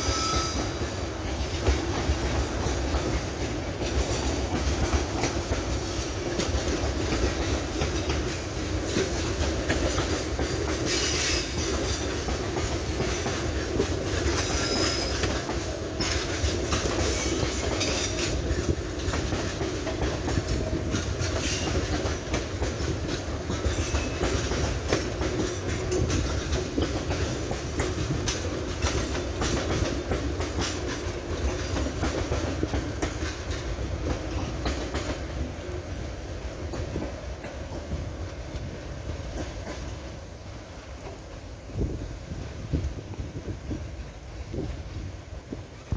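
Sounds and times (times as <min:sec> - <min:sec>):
faint wheel squeal: 0:00.0 - 0:00.7
freight train rumbling past: 0:00.0 - 0:45.9
wheels clicking over rail joints: 0:00.0 - 0:45.9.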